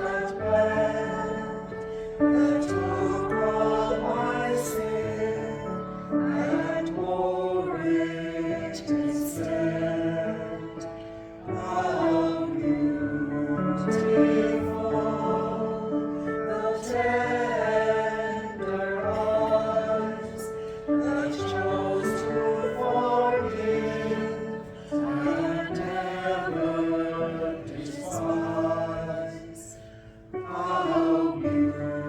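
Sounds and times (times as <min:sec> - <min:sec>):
choir singing: 0:00.0 - 0:32.0.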